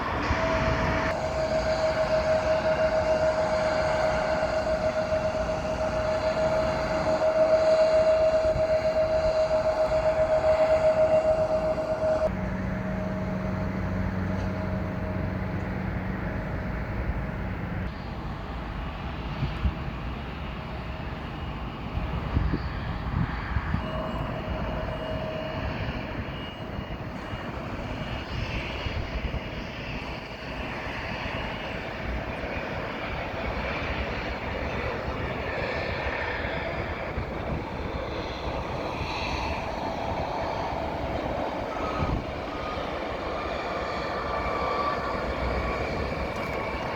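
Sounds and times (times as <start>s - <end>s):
airliner engines rumbling: 0.0s - 46.9s.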